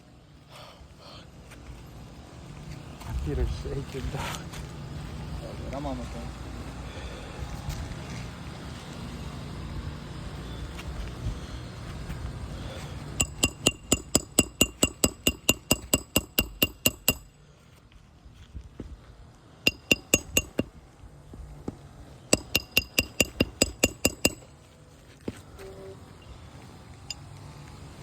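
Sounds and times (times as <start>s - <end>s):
hammer striking nails: 13.2s - 17.4s, 19.7s - 20.7s, 22.4s - 24.5s.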